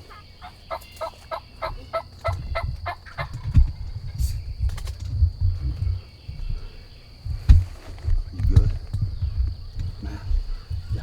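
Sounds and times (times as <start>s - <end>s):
wild turkey yelping: 0.0s - 3.5s
low rumbling: 1.5s - 11.0s
thumps: 7.2s - 11.0s.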